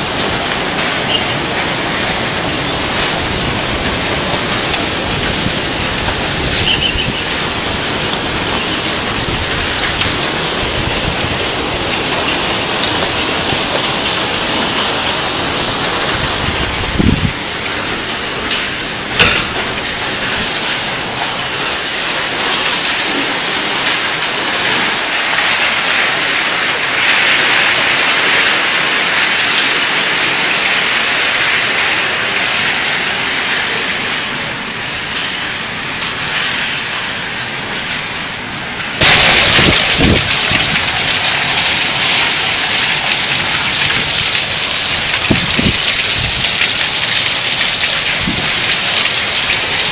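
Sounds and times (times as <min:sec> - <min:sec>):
hail and heavy rain pelting: 0:00.0 - 0:49.9
sharp knocks: 0:19.2 - 0:19.8.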